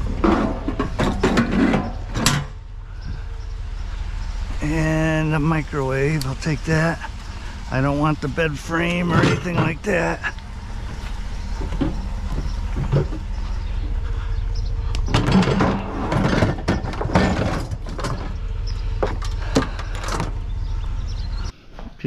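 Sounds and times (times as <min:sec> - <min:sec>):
knocks and clatter of objects: 0:00.0 - 0:02.6, 0:09.1 - 0:14.0, 0:15.0 - 0:20.4
vehicle engine rumbling: 0:00.0 - 0:22.0.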